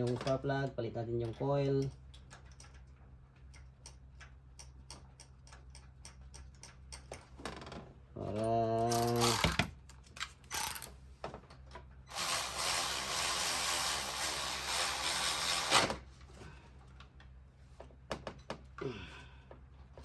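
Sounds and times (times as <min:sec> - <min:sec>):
power tool running: 0:08.9 - 0:09.7, 0:10.5 - 0:10.9, 0:12.1 - 0:16.0.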